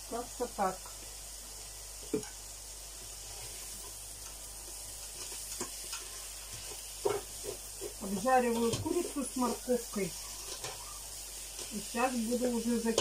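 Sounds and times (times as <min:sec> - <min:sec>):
food sizzling in a pan: 0:00.0 - 0:13.0
scrapes in a pan: 0:03.2 - 0:04.0, 0:04.6 - 0:13.0.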